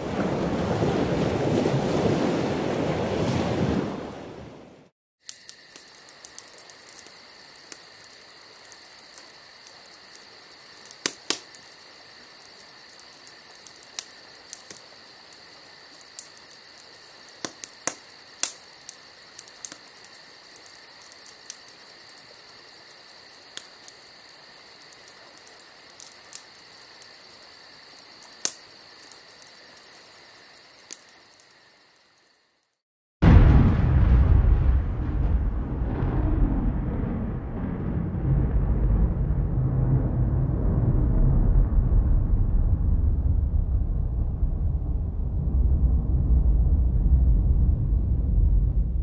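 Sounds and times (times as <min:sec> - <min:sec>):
high-pitched insect trilling: 0:05.3 - 0:32.6.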